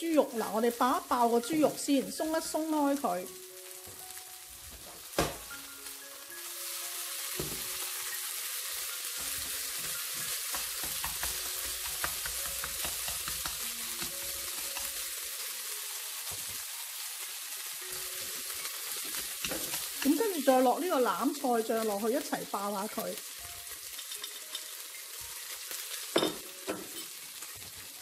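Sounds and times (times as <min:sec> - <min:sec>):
meat sizzling in hot oil: 0:00.0 - 0:28.0.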